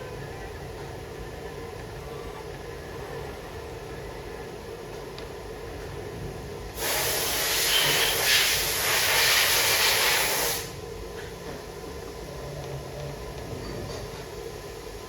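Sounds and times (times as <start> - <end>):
compressed air hissing: 6.8 - 10.8.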